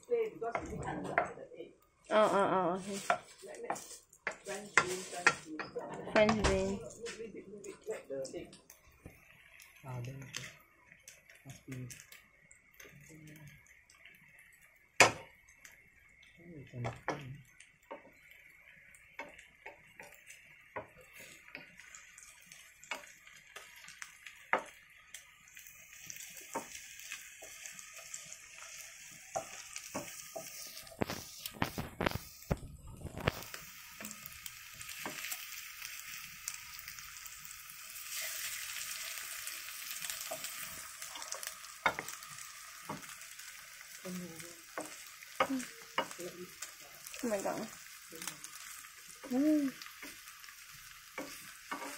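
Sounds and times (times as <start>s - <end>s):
food sizzling in a frying pan: 0.0s - 51.9s
wooden spatula scraping pan: 2.8s - 6.4s, 27.4s - 34.2s, 51.1s - 51.9s.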